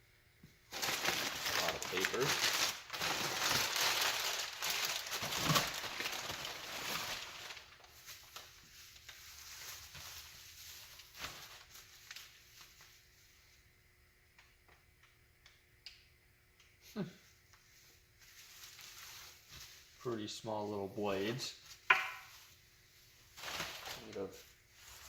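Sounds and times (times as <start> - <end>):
packing paper crumpling and rustling: 0.7 - 13.2, 18.2 - 20.0, 21.2 - 25.0.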